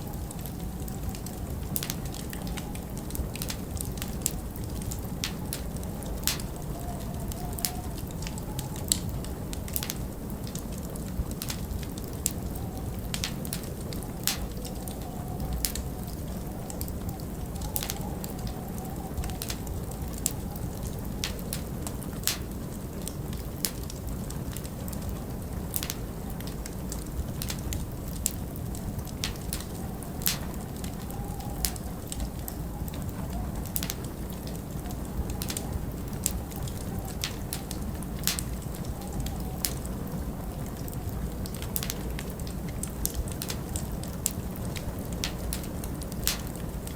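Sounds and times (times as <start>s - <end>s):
low rumble of wind: 0.0s - 46.9s
wood fire crackling: 0.0s - 46.9s.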